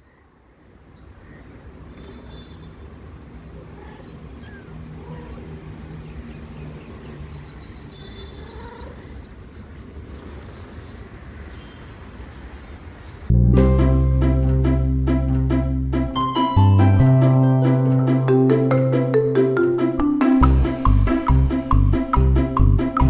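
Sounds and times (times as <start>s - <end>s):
faint high kitten chirps: 3.6s - 5.5s, 8.0s - 9.2s
cat purring: 3.6s - 5.6s.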